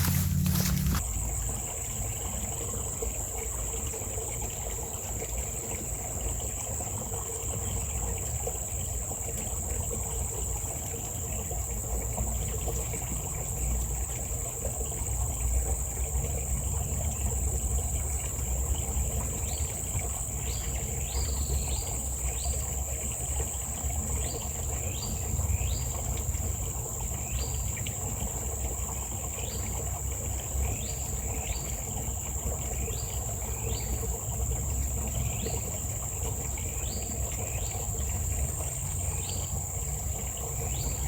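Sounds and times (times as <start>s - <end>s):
insects droning: 0.0s - 3.8s, 13.2s - 41.0s.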